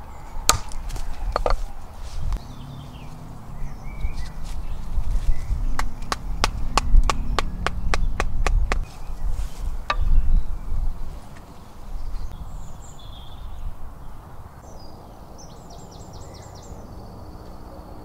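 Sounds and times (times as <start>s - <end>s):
birds chirping: 0.0s - 18.0s
low background rumble: 2.3s - 13.3s.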